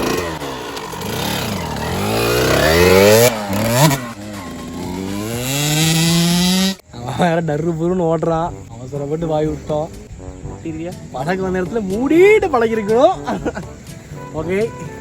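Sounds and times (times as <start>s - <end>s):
dirt bike engine revving: 0.0s - 6.9s.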